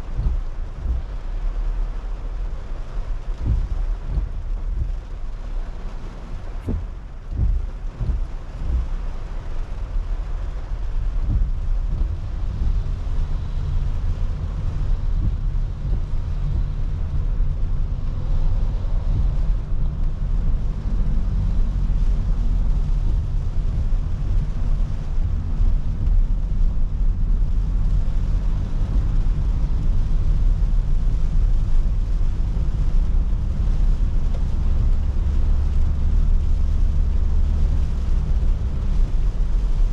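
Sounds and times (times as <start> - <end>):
car interior road rumble: 0.0 - 39.9
short thumps: 3.2 - 5.4, 6.5 - 26.2.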